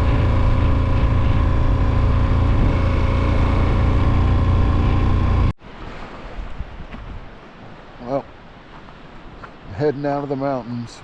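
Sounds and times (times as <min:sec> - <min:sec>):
motorcycle engine rumbling: 0:00.0 - 0:05.6.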